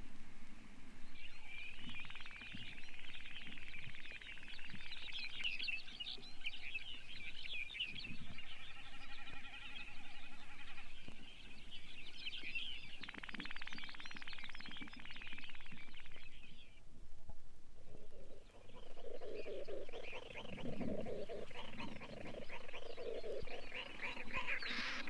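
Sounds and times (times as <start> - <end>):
sandpiper chirping twitters: 18.1 - 25.0.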